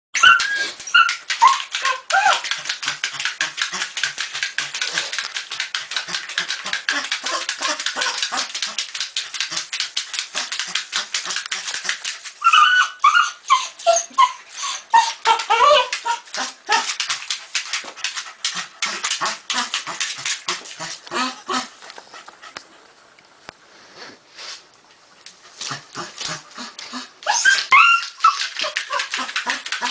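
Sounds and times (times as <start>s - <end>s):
dog whining and yipping: 0.2s - 2.6s, 12.4s - 17.0s, 26.9s - 29.9s.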